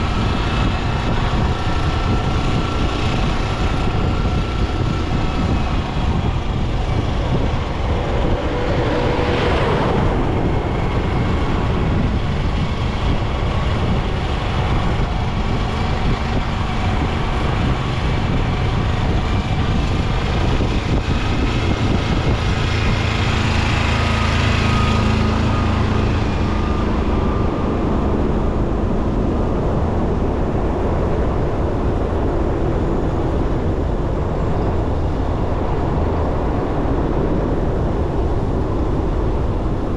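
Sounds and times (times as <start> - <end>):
motorcycle engine running: 0.0 - 30.9
wind buffeting microphone: 0.0 - 39.9.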